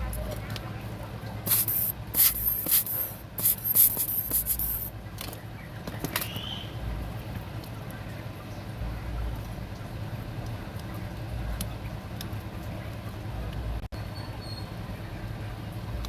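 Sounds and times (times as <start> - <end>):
hissing spray bursts: 1.5 - 4.9
steady low hum: 1.5 - 4.9.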